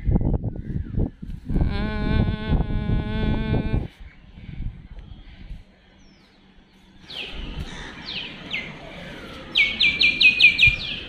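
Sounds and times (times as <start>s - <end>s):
songbird chirping: 3.9s - 11.0s.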